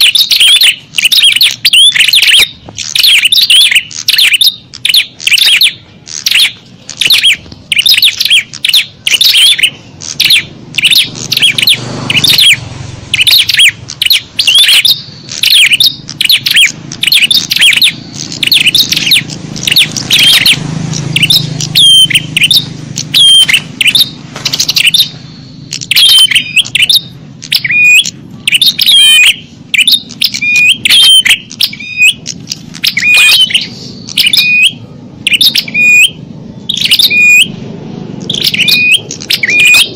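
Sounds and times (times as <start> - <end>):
songbirds chirping in chorus: 0.0 - 39.9.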